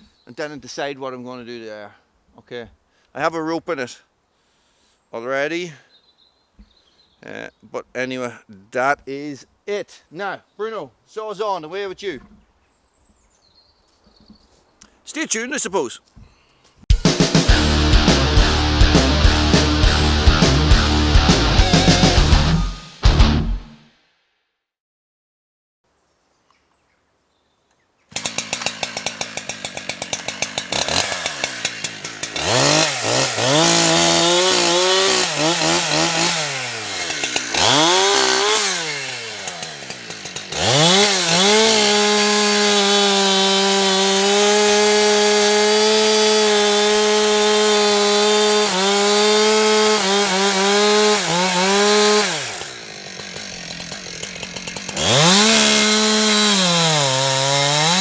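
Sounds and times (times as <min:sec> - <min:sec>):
chainsaw idling and revving: 0:17.1 - 0:22.6, 0:28.1 - 0:58.0.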